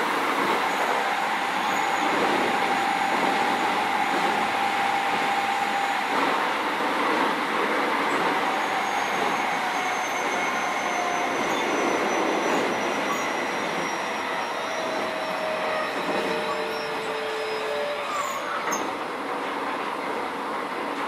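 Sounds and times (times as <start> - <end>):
train wheels rumbling on track: 0.0 - 21.0.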